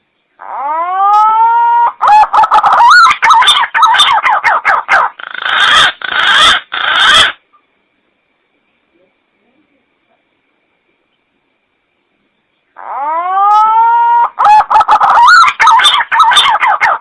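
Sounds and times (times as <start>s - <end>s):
pigeon song whistling and warbling: 12.8s - 17.0s.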